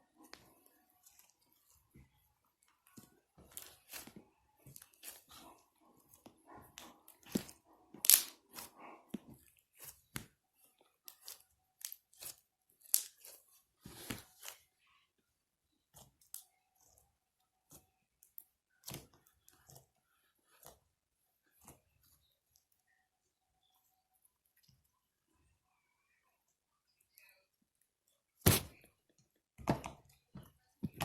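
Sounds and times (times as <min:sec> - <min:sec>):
slime popping and clicking: 0:08.0 - 0:08.3.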